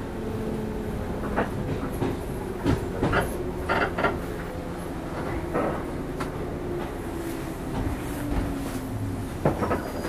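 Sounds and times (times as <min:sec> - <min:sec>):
electric train hum: 0:00.0 - 0:10.0
wheels clacking over rail joints: 0:01.2 - 0:06.9, 0:09.4 - 0:10.0.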